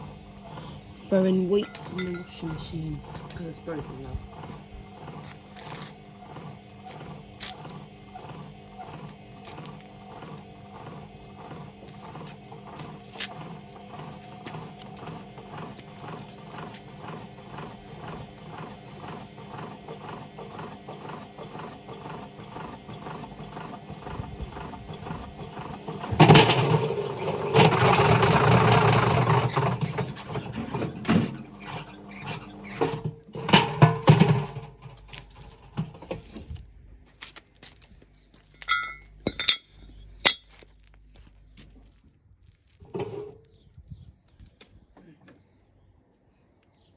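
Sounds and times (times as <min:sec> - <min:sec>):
washing machine knocking: 0:00.0 - 0:31.8, 0:32.6 - 0:34.8
loud rattling clattering: 0:00.9 - 0:31.2.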